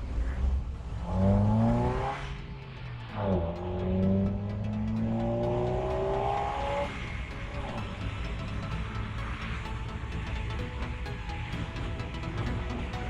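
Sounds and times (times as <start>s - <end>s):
car engine accelerating: 0.8s - 10.3s.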